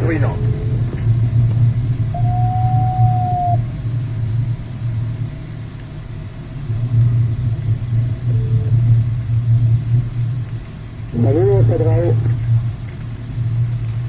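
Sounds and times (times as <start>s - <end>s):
aircraft cockpit rumble: 0.0s - 14.0s
steady beep tone: 2.1s - 3.6s.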